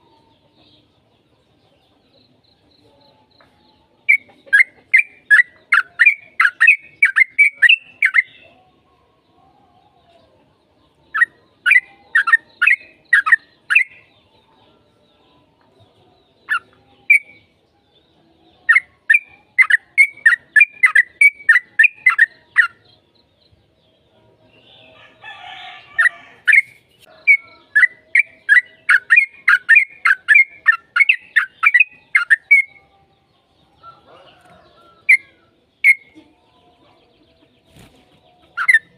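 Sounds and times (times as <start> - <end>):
bird singing chattering phrases: 4.0 - 8.6, 11.0 - 14.2, 16.2 - 17.6, 18.6 - 23.6, 25.8 - 32.9, 34.3 - 38.9.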